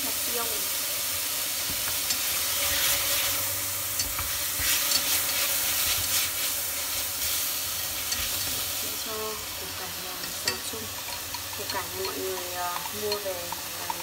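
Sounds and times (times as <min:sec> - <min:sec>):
beef sizzling in a pot: 0:00.0 - 0:14.0
ceramic bowl ringing against pot: 0:10.2 - 0:14.0
chopsticks clicking against pot: 0:10.2 - 0:14.0.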